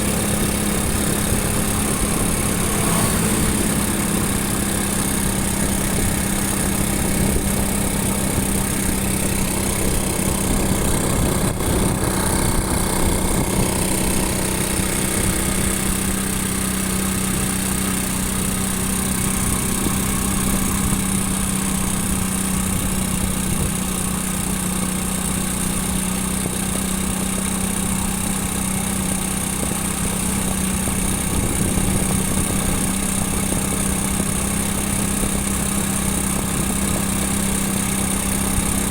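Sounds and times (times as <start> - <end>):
motorcycle engine running: 0.0 - 38.9
rush of wind noise: 5.8 - 16.2, 30.9 - 34.2.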